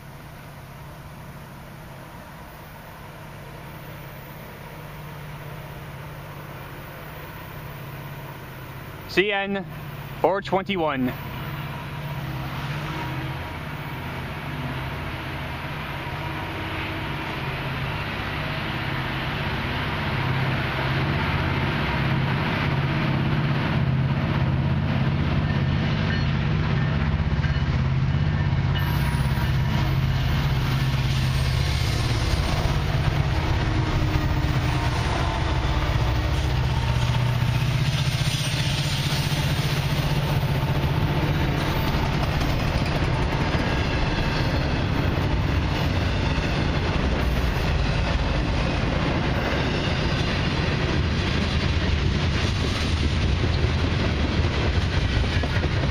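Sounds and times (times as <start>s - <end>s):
locomotive engine drone: 0.0s - 55.9s
rail cars clattering: 3.3s - 55.9s.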